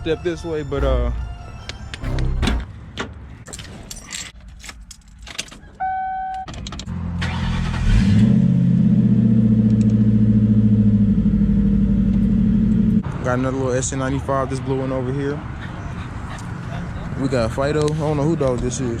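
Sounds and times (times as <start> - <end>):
keys jangling: 3.5 - 5.7
car engine starting and idling: 6.5 - 13.0.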